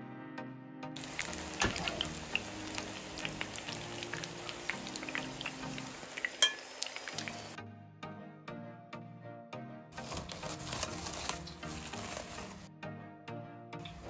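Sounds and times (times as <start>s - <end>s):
background music: 0.0s - 14.0s
food sizzling in hot oil: 1.0s - 7.6s.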